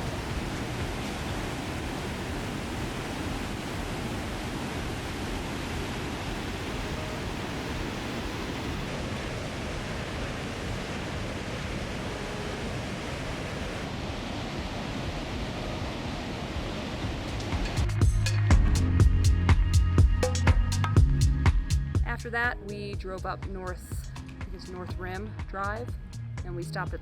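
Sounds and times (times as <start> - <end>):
rush of falling water: 0.0 - 18.0.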